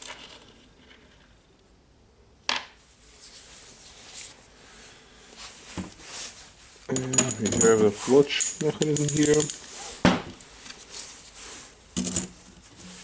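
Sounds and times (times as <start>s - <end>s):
metal parts being handled: 6.9s - 9.8s, 12.0s - 13.0s.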